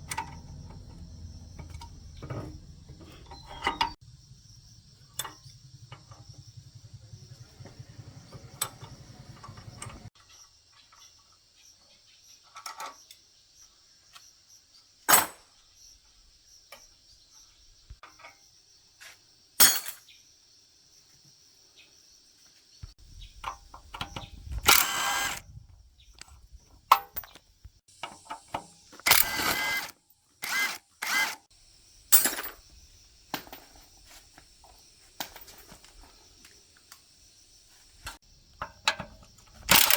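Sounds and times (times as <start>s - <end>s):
power tool humming: 24.6s - 25.4s, 29.0s - 31.5s
sharp clicks and knocks: 38.6s - 39.9s.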